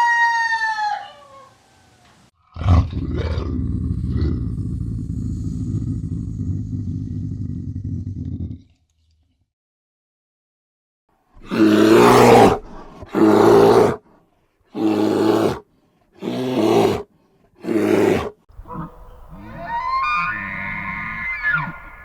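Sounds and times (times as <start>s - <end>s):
large animal calling: 18.6s - 22.0s.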